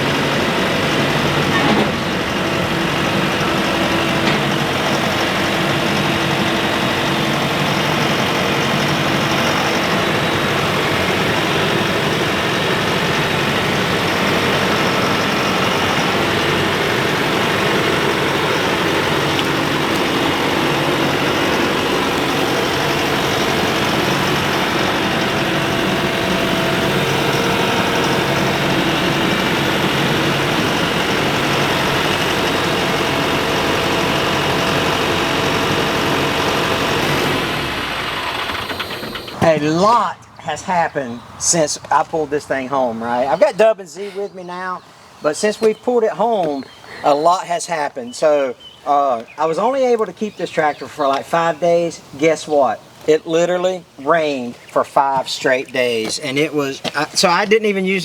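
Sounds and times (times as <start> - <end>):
vehicle engine running: 0.0 - 43.4.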